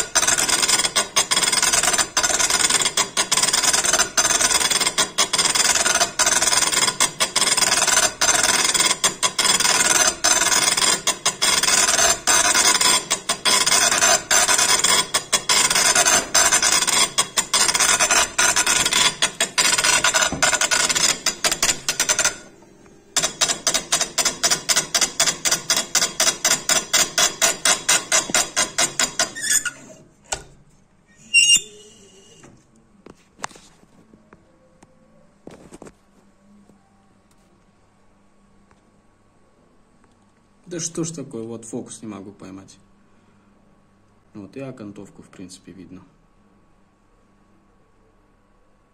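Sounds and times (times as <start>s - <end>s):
engraving needle hammering stone: 0.0s - 22.5s, 23.2s - 29.7s.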